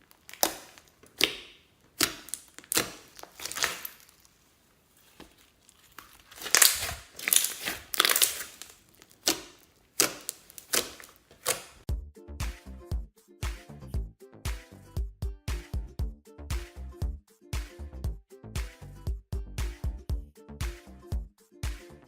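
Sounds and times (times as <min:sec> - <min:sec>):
slime squeezed by hand popping: 0:00.3 - 0:04.0, 0:06.3 - 0:11.8
dance beat music: 0:11.9 - 0:22.0.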